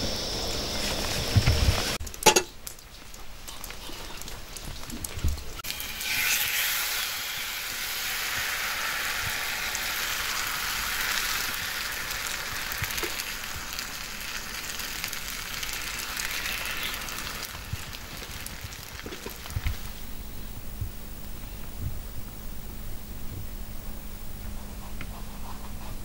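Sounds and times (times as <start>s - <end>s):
food sizzling in hot oil: 0.0s - 20.2s.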